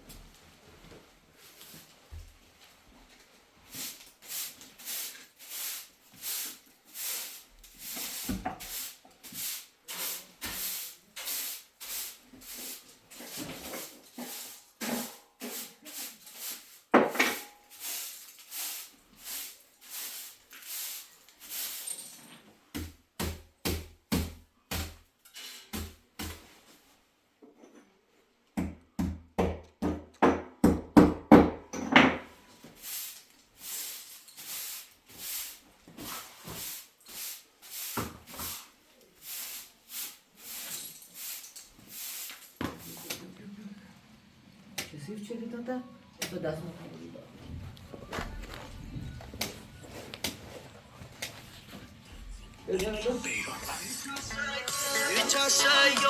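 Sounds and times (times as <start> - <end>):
footsteps in snow: 47.4 - 53.9.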